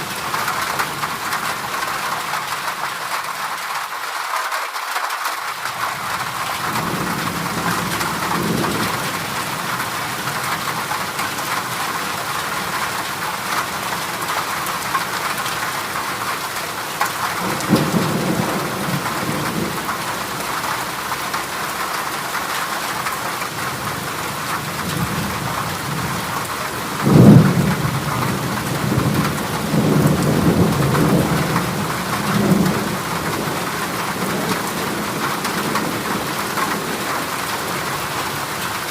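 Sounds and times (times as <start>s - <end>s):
heavy rain on metal roof: 0.0s - 38.9s
thunder crack: 17.4s - 19.9s, 26.9s - 37.0s
thunder rumbling: 17.4s - 21.5s, 23.6s - 38.7s.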